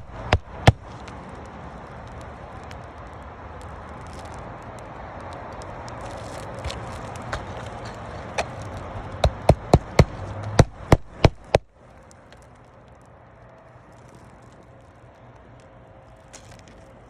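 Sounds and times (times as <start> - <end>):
sharp knocks: 9.2 - 11.7.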